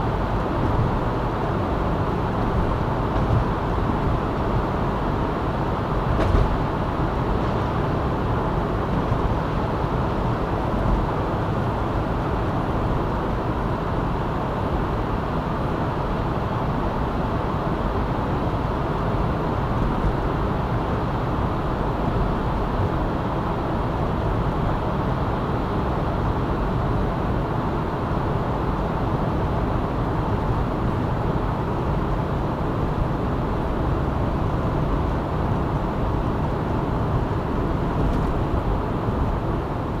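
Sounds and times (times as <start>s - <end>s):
car road and tyre noise: 0.0s - 40.0s
brief knock: 6.2s - 6.6s.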